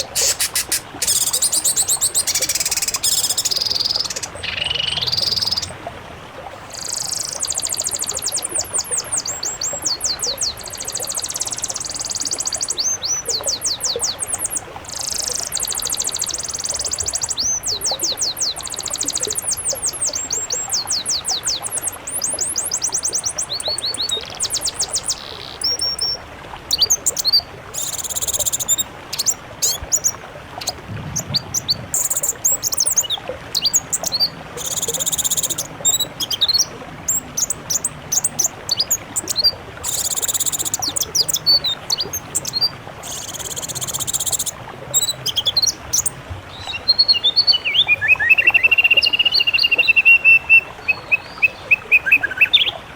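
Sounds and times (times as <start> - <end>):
harsh hissing bursts: 0.0 - 1.3
songbirds singing: 0.0 - 5.8, 6.7 - 52.9.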